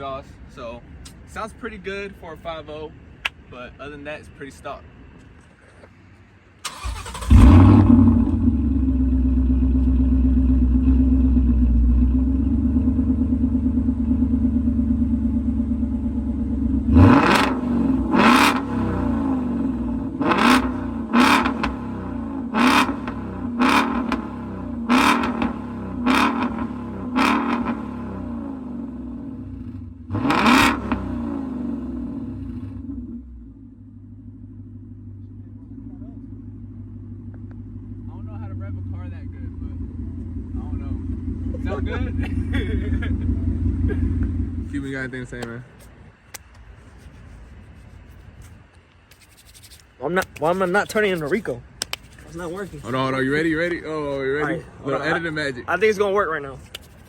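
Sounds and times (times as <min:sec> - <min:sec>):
car engine starting and idling: 0:06.4 - 0:45.6
engine throttle revs: 0:06.6 - 0:33.4.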